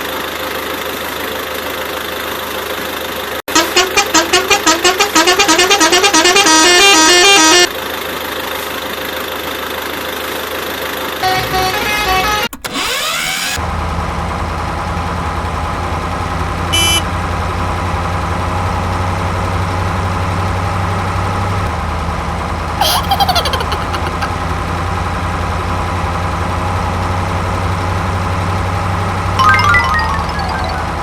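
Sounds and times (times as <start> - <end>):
vehicle engine idling: 13.6 - 23.4, 24.2 - 29.4
falling tones: 29.4 - 31.0.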